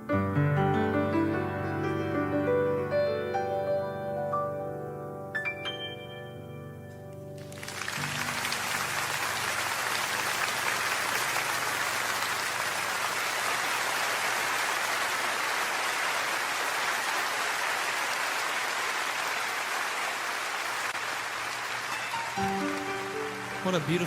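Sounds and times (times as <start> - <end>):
audience applauding: 7.4 - 24.0.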